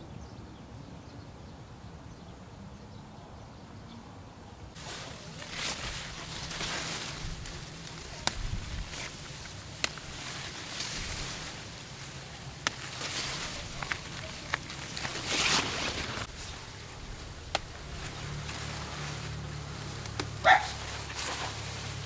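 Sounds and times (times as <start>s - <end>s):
rustling: 4.8s - 22.0s
sharp snaps: 12.6s - 13.0s.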